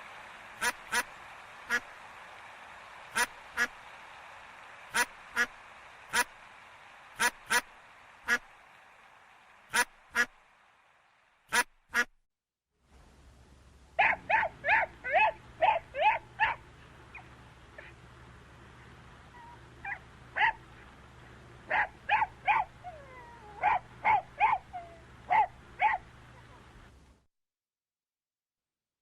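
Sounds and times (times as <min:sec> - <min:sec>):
dog yipping: 0:14.0 - 0:17.9, 0:19.4 - 0:20.6, 0:21.7 - 0:26.0.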